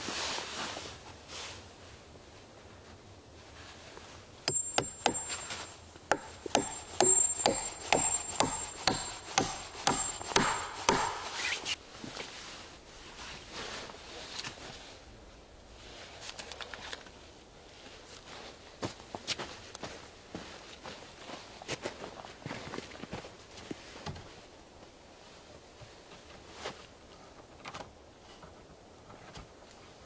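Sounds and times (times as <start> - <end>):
tool knocking on wood: 4.5 - 11.4.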